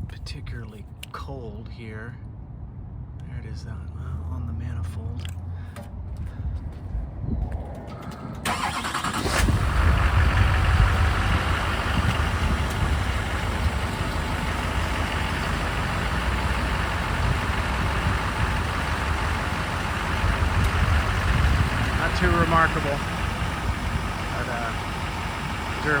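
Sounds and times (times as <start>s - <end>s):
diesel engine idling: 8.0s - 26.0s
starter motor cranking: 8.4s - 13.8s.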